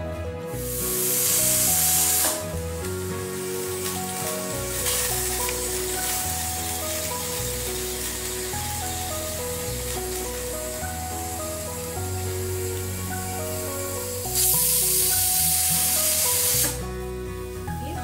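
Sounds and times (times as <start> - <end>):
background music: 0.0 - 18.0
pressure cooker hissing steam: 0.6 - 2.6, 5.6 - 16.8.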